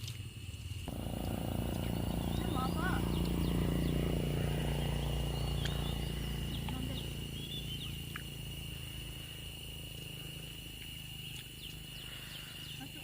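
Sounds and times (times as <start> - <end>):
high-pitched insect drone: 0.7 - 13.0
low rumble: 0.9 - 9.5
bird chirps: 0.9 - 13.0.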